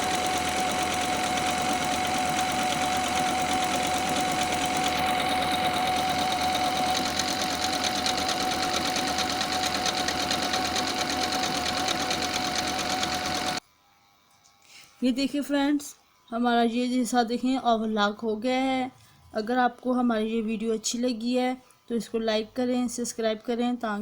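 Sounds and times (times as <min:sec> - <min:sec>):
sewing machine stitching: 0:00.0 - 0:13.6.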